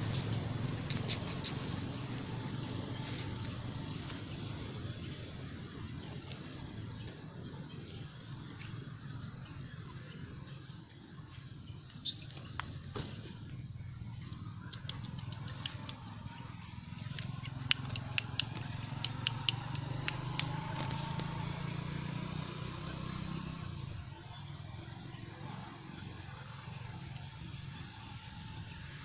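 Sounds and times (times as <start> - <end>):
sharp clicks: 17.0 - 21.2.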